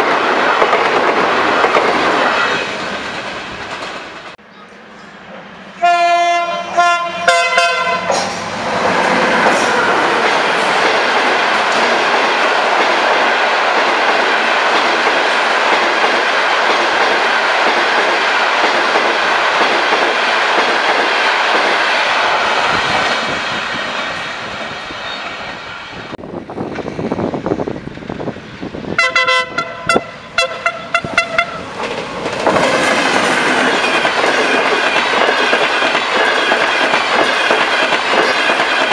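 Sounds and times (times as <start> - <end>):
train wheels on rail: 0.0 - 38.9
train horn blasts: 5.7 - 8.3, 29.0 - 31.6.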